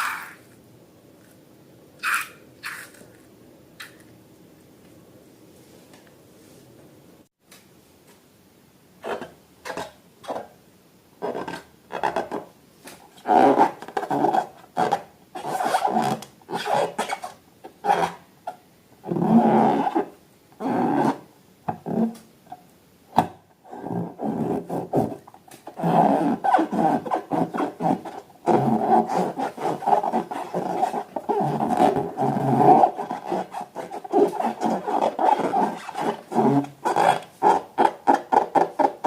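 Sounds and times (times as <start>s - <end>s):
rubber balloons squeaking: 2.0s - 3.0s, 23.7s - 39.0s.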